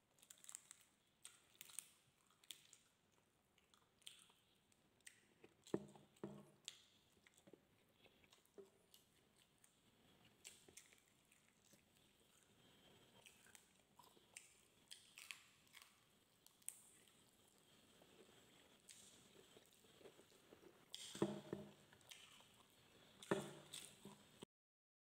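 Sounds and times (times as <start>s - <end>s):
wet mouth clicks and smacks: 4.0s - 4.4s, 20.9s - 22.3s
person chewing and biting: 5.0s - 24.4s.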